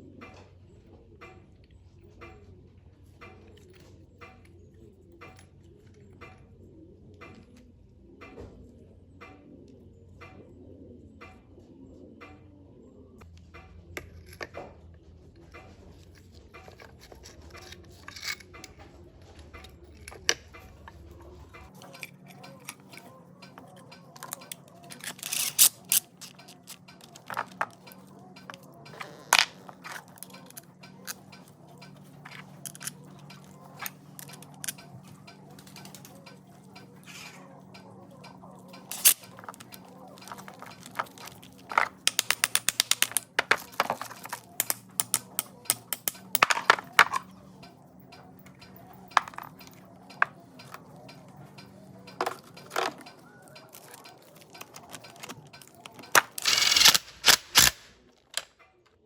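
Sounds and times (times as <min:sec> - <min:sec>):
steady low hum: 0:00.0 - 0:58.5
metal tools clinking on workbench: 0:15.6 - 0:58.5
fast even clicks: 0:19.4 - 0:58.5.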